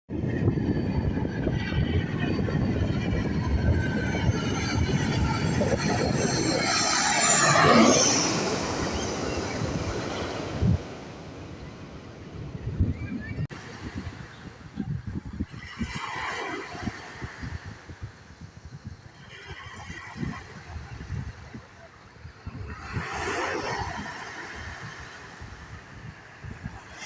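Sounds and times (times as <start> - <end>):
jet airliner passing overhead: 0.1 - 14.2
wind buffeting microphone: 0.1 - 27.0.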